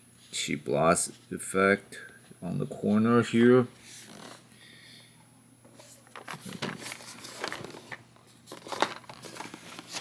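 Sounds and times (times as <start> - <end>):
box rustling: 6.2 - 10.0.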